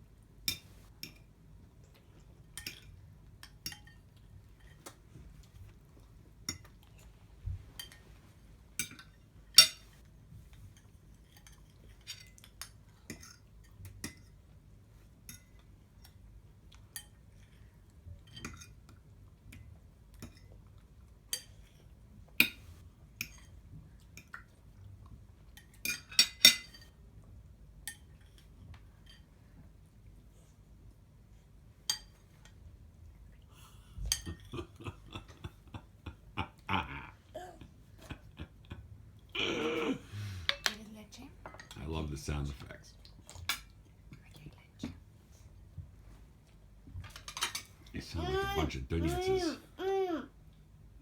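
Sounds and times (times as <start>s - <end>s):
cutlery clinking against plates: 0.5s - 1.3s, 2.5s - 5.0s, 6.4s - 6.8s, 7.8s - 8.1s, 8.8s - 10.0s, 10.7s - 14.6s, 15.2s - 23.6s, 25.6s - 27.0s, 27.9s - 29.4s, 31.8s - 32.6s, 34.0s - 35.4s, 43.4s - 43.8s, 47.0s - 47.9s.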